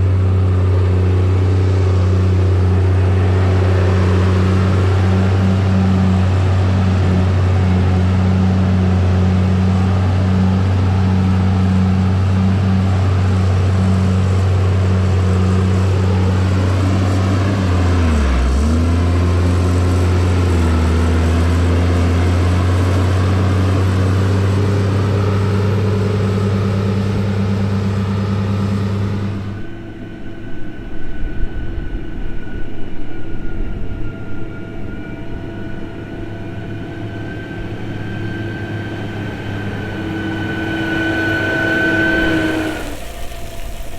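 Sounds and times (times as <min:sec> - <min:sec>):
diesel engine running: 0:00.0 - 0:43.9
uneven low rumbling: 0:00.0 - 0:43.9.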